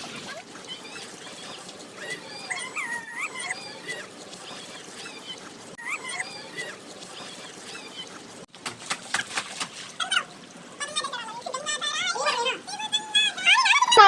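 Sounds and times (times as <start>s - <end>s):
high squeaky calls: 0.0s - 8.3s.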